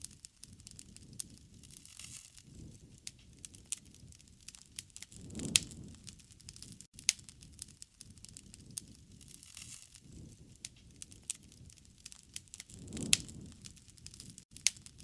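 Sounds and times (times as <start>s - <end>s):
low rumble of flame: 0.0s - 15.0s
wood crackling and popping: 0.0s - 15.0s.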